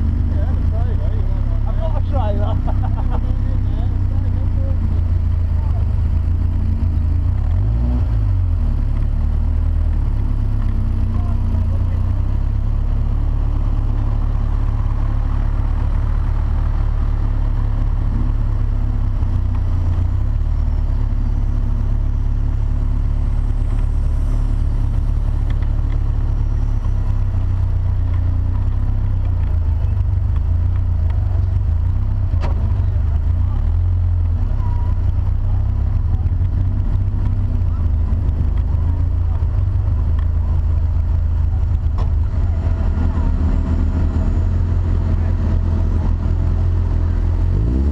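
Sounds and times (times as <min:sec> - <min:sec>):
car engine running at low revs: 0:00.0 - 0:47.9.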